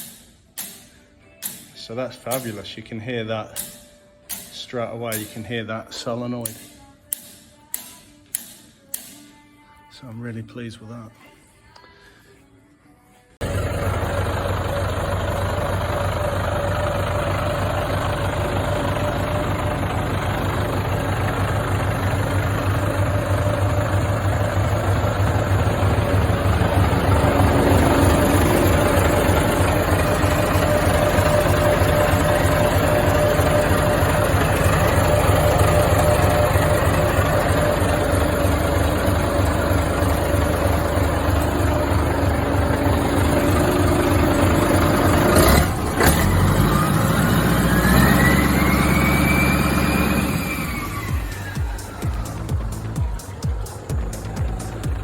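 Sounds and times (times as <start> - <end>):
diesel truck engine running: 13.4 - 55.0.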